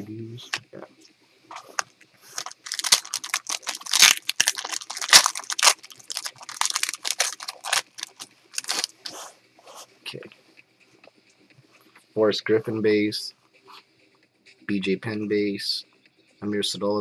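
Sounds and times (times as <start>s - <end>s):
plastic wrapper tearing and crinkling: 1.5s - 9.1s.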